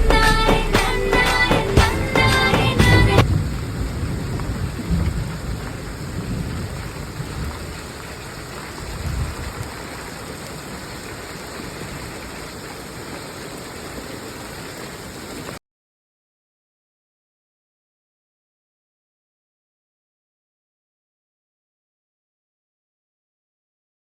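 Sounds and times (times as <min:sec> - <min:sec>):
low rumbles of thunder: 0:00.0 - 0:10.9
heavy rain falling: 0:00.0 - 0:15.6.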